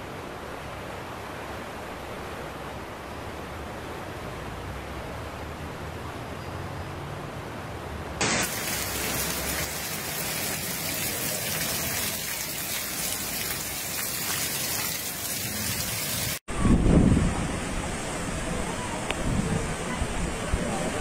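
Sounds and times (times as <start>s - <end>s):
heavy rain hissing: 8.2s - 16.4s.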